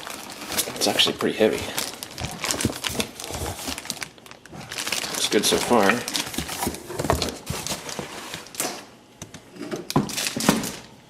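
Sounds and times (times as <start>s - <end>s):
packaging clicks and knocks: 1.8s - 4.0s.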